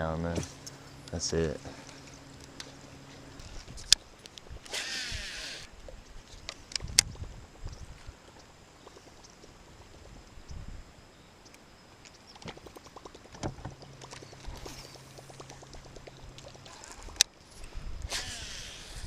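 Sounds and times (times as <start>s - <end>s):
low steady hum: 0.0s - 19.0s
quick run of ticks: 11.5s - 19.0s.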